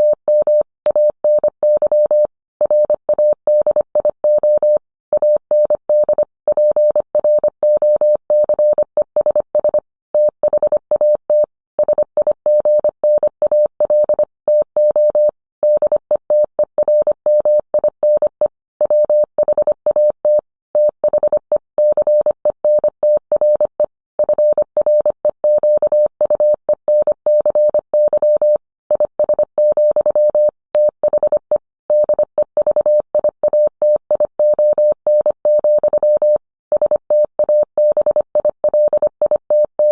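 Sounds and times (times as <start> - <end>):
morse code tone beeping: 16.8 - 39.9.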